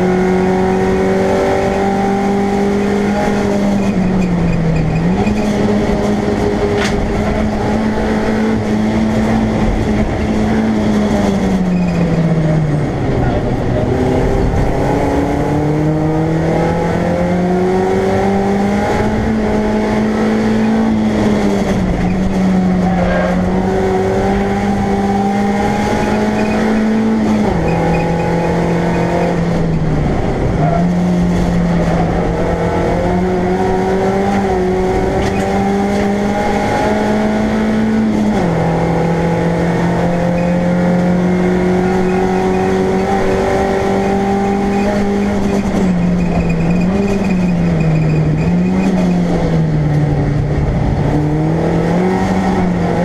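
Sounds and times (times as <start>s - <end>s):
race car engine accelerating: 0.0s - 53.0s.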